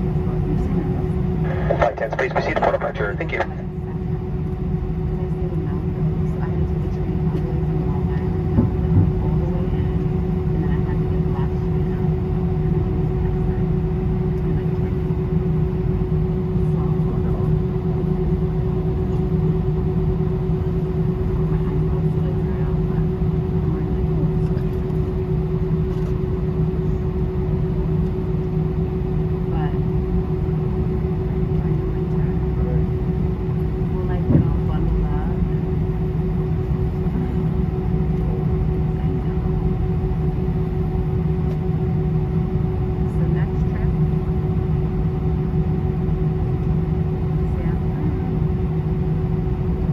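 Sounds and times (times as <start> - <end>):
constant cabin hum: 0.0 - 49.9
jet engine rumble in cabin: 0.0 - 49.9.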